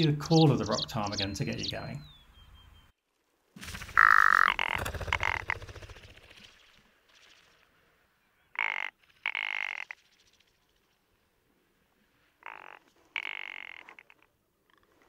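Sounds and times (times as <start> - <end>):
bird harsh croaks: 3.8 - 6.7, 8.5 - 10.0, 12.4 - 15.0.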